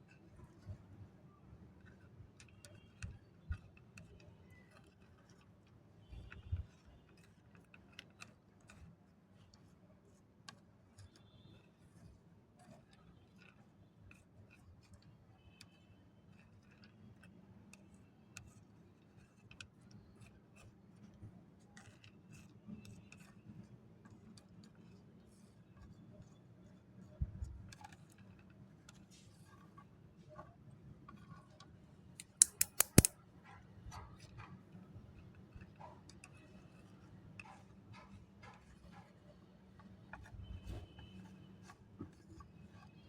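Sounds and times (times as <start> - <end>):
small clicks and taps: 32.2 - 33.1.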